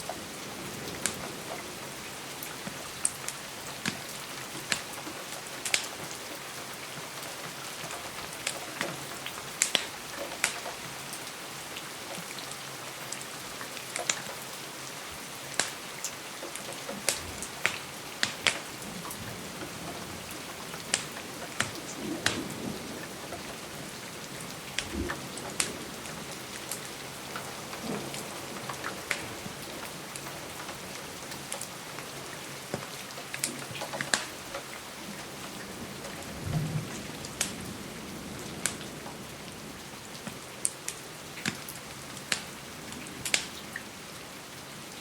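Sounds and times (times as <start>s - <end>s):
rain pattering against a window: 0.0s - 45.0s
wood fire crackling: 2.4s - 6.4s, 7.7s - 10.7s, 15.5s - 35.4s, 40.2s - 43.6s.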